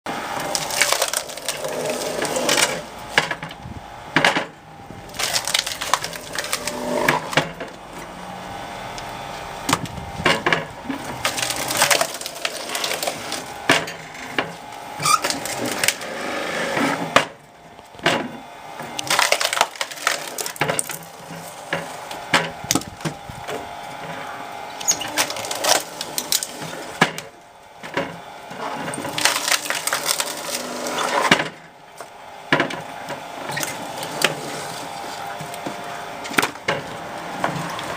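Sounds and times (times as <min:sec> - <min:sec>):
wood cracking and splintering: 0:00.3 - 0:08.2, 0:09.6 - 0:24.2, 0:24.8 - 0:37.9.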